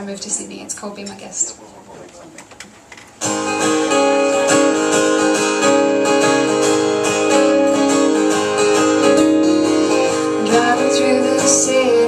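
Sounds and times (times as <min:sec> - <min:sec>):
acoustic guitar strummed and picked: 0:03.2 - 0:12.0.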